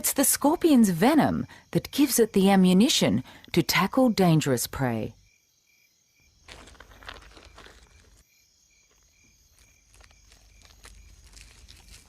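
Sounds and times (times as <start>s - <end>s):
insect chirping in pulses: 0.0s - 12.0s
dry rustling and crunching: 6.4s - 12.0s.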